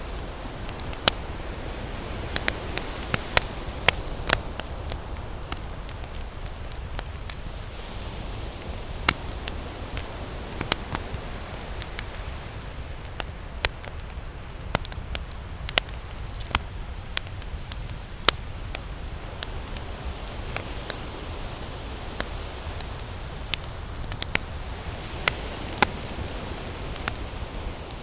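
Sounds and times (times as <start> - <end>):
campfire crackling: 0.0 - 28.0.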